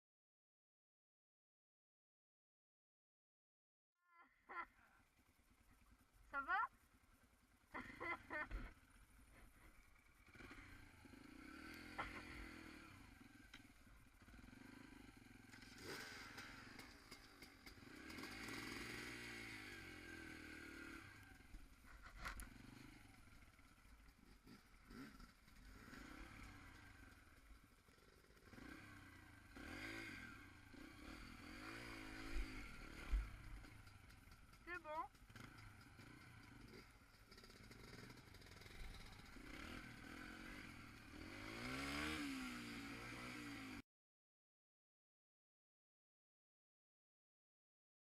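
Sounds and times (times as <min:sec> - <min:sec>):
dirt bike engine revving: 0:07.7 - 0:43.8.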